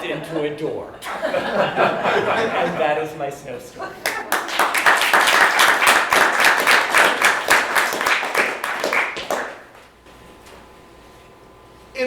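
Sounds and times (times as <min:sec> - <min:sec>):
audience applauding: 0:04.0 - 0:09.8.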